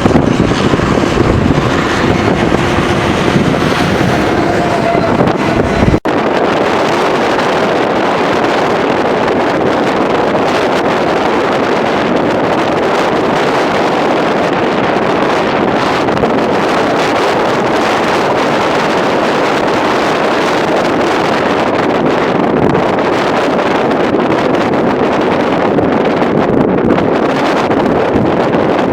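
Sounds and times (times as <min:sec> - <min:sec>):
strong wind buffeting microphone: 0:00.0 - 0:28.9.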